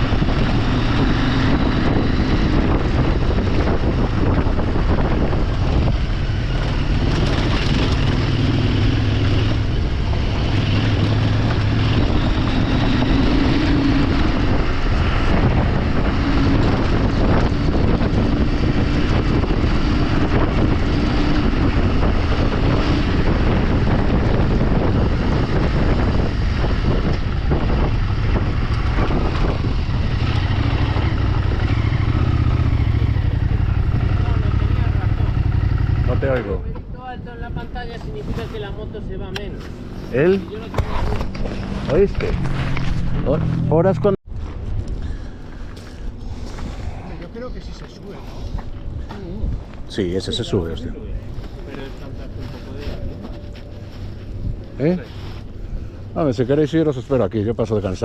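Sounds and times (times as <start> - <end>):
motorcycle engine running: 0.0 - 36.7
wind noise on microphone: 0.0 - 58.0.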